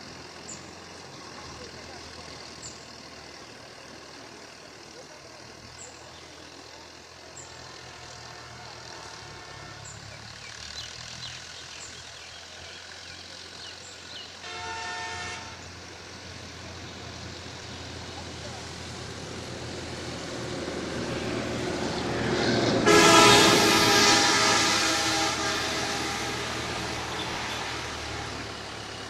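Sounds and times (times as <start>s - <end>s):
tractor engine running: 0.0s - 29.0s
horn sounding: 7.4s - 10.4s, 14.0s - 18.3s, 20.9s - 29.0s.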